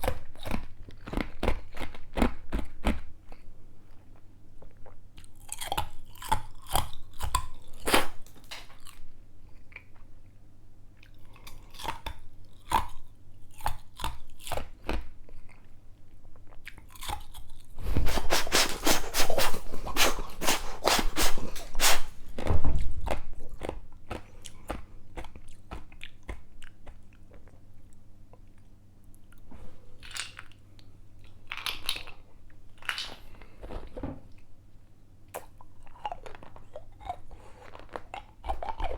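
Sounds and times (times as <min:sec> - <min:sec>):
ice being chewed: 0:11.0 - 0:22.4, 0:35.4 - 0:38.9.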